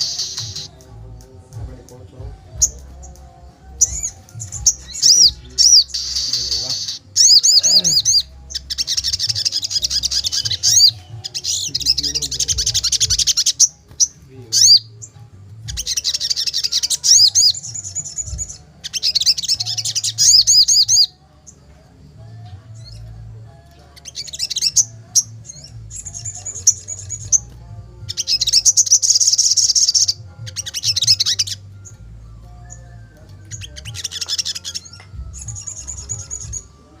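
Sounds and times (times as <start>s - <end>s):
bird warbling rapidly: 3.8s - 15.1s.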